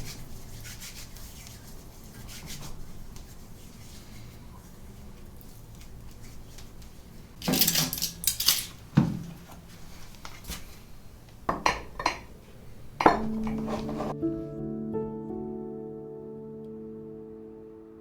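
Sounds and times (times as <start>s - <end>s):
dishes and cutlery clattering: 7.4s - 8.7s, 11.5s - 12.3s, 13.0s - 14.2s.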